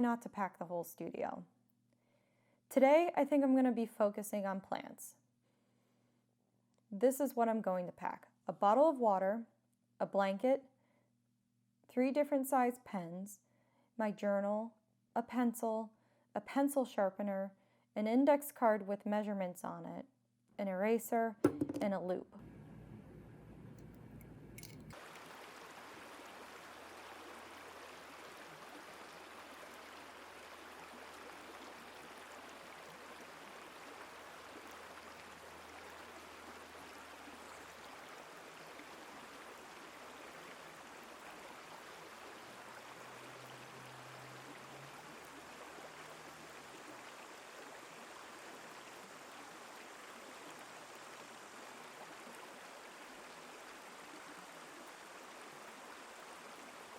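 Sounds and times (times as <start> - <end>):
running water rushing: 23.8 - 56.9.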